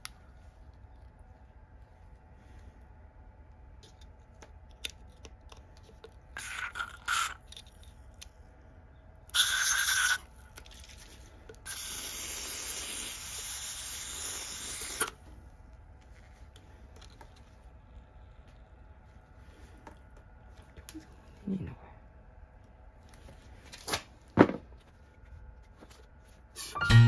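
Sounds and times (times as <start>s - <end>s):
pressurised spray hissing: 11.7s - 15.2s.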